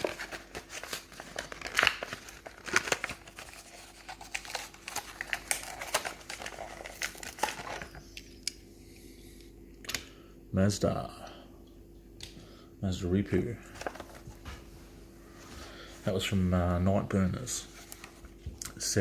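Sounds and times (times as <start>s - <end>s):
plastic packaging tearing: 0.0s - 8.0s
plastic crinkling and crackling: 0.0s - 8.3s.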